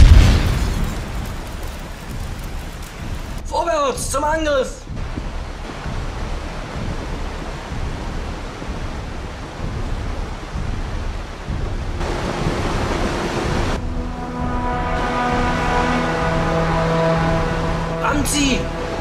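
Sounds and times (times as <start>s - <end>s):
steady low rumbling: 4.8s - 19.0s
music with long held notes: 12.0s - 19.0s.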